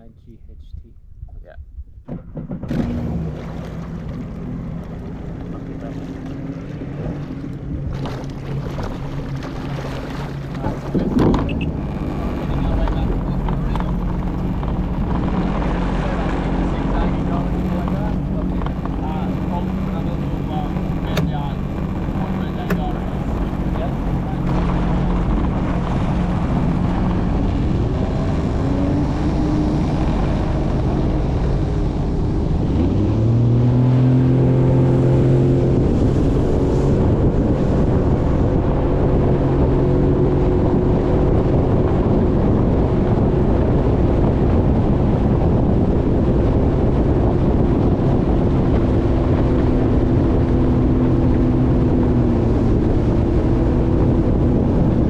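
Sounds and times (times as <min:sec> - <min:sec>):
jet ski engine speeding up: 0:02.1 - 0:55.0.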